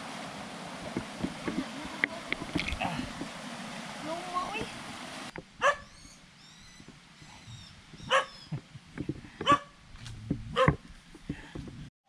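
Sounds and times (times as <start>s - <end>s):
dog barking: 5.6s - 5.9s, 8.1s - 8.4s, 9.4s - 9.7s, 10.5s - 10.8s.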